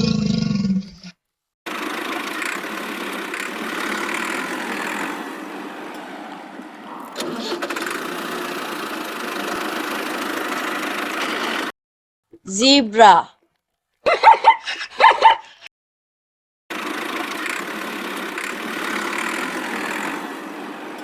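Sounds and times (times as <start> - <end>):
alligator rasping: 0.0 - 1.2, 14.4 - 15.7.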